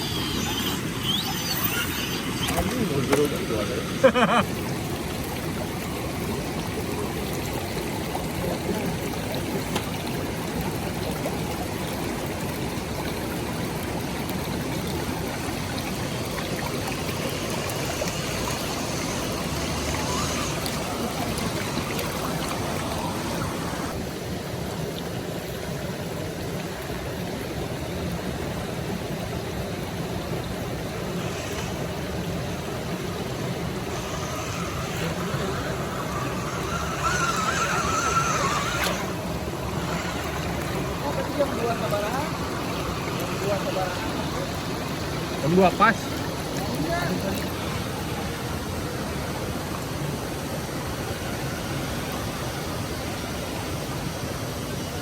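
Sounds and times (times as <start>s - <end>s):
running water rushing: 0.0s - 55.0s.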